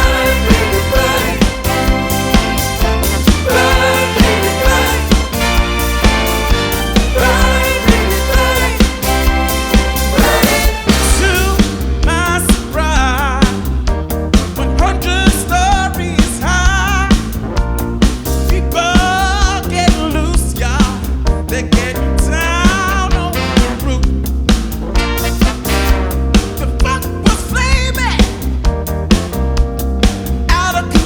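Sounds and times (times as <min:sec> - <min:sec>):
disco music with singing: 0:00.0 - 0:12.8.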